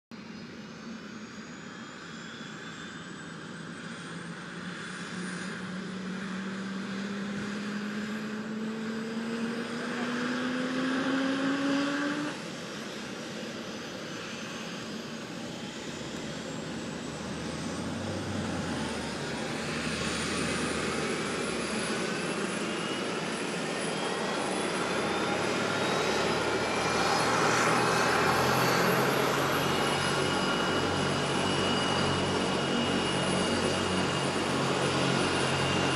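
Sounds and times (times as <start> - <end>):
helicopter turbine whine: 0.2 - 35.9.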